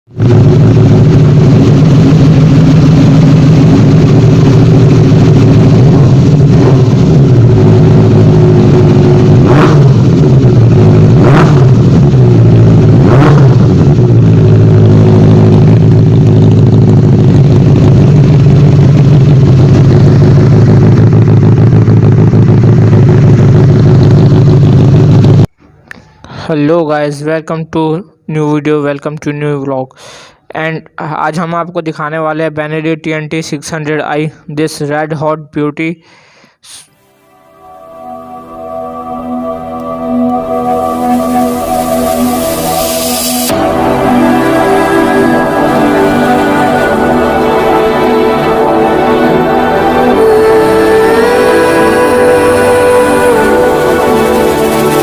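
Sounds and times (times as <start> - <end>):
motorcycle engine idling and revving: 0.0 - 25.5, 40.5 - 55.0.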